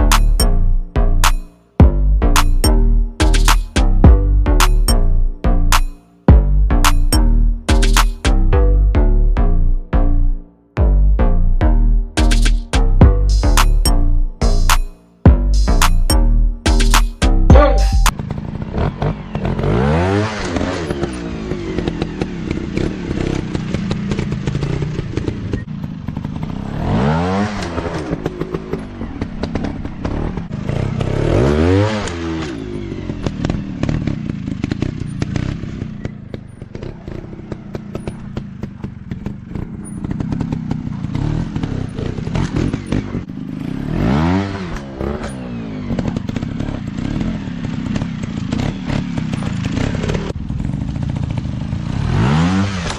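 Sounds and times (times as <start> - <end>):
dirt bike engines revving: 16.7 - 52.9.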